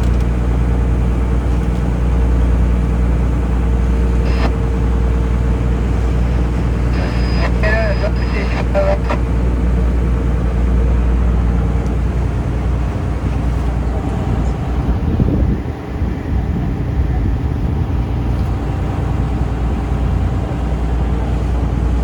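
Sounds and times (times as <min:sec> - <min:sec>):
boat engine running: 0:00.0 - 0:22.0
rushing wind: 0:13.0 - 0:20.5.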